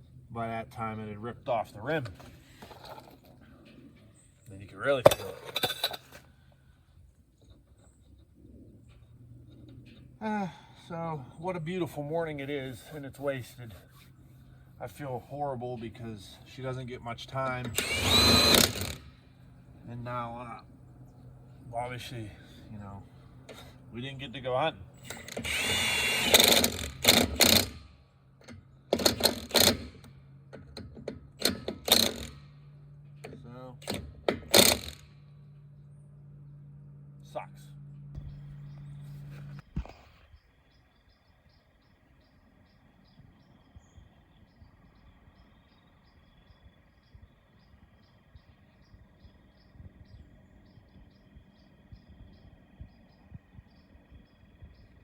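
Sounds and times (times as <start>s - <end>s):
low outdoor rumble: 0.0s - 29.0s, 34.9s - 55.0s
power tool rattling: 5.0s - 6.4s, 17.2s - 20.5s, 24.9s - 27.9s, 28.9s - 32.6s, 33.8s - 35.2s.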